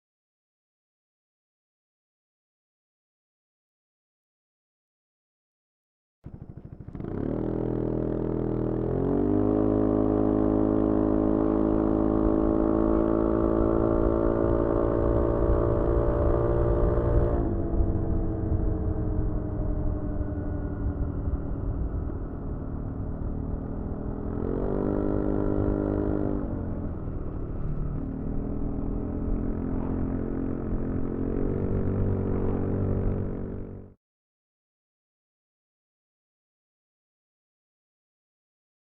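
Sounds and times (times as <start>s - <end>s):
scooter engine revving: 6.3s - 17.8s, 22.3s - 34.0s.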